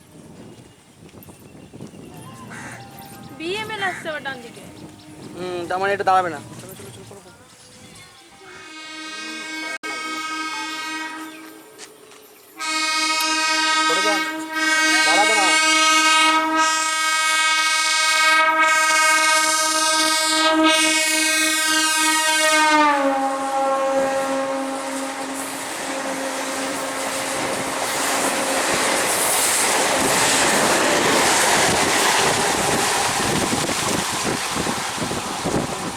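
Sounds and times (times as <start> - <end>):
train horn: 8.4 - 11.9, 12.6 - 28.8.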